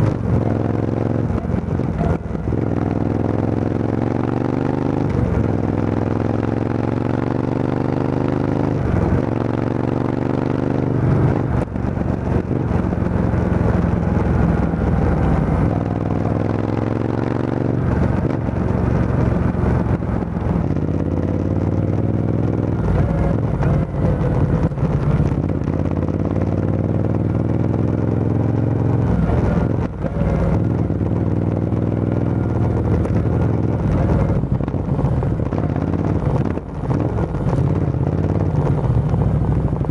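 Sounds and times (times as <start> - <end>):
motorcycle accelerating through gears: 0.0 - 39.9.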